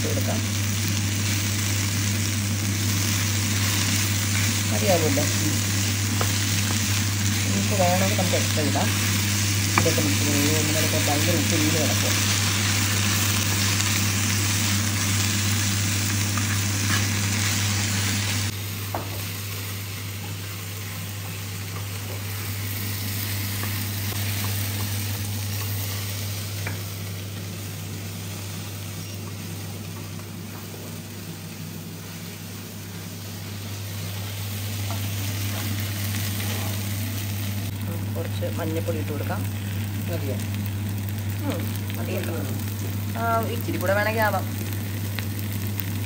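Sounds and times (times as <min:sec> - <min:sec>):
steady low hum: 0:00.0 - 0:18.9
okra sizzling in oil: 0:00.0 - 0:46.0.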